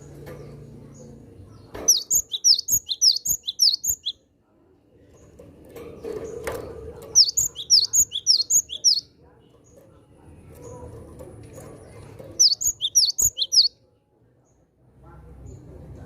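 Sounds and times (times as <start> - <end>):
bird calling rapid high notes: 12.4 - 13.7.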